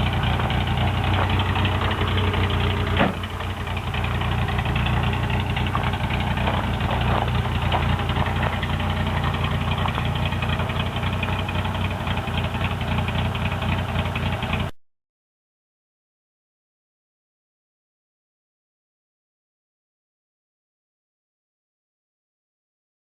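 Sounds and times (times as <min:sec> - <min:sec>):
pickup engine idling: 0:00.0 - 0:14.7.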